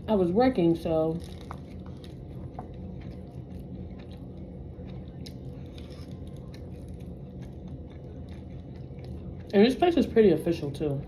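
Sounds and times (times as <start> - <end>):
person chewing food: 1.2 - 9.9.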